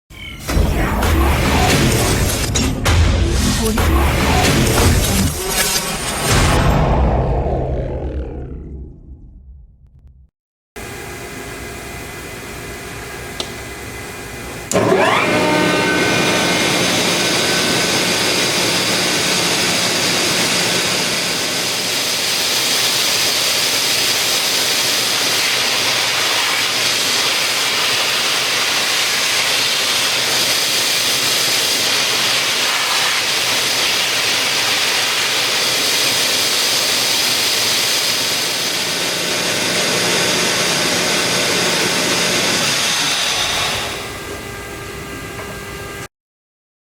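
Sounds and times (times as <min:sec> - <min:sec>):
air compressor running: 0:10.8 - 0:46.1.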